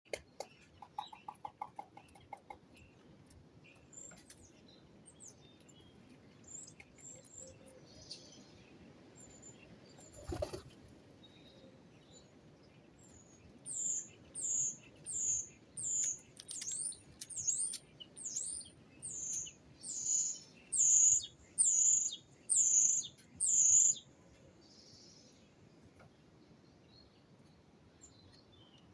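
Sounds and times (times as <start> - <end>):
small bird calling: 13.7 - 24.0.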